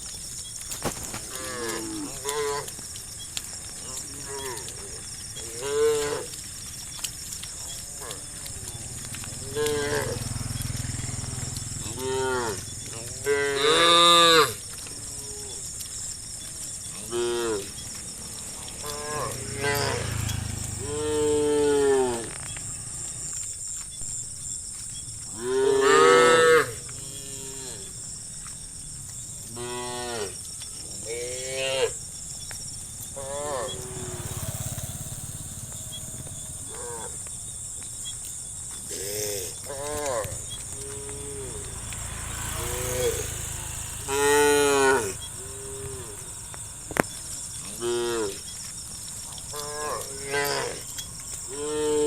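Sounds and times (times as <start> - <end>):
cattle mooing: 9.3 - 11.1, 11.8 - 15.6, 17.0 - 17.7, 18.5 - 22.3, 25.4 - 27.8, 33.2 - 37.3, 42.5 - 46.3, 47.6 - 48.4, 49.5 - 50.9, 51.5 - 52.0.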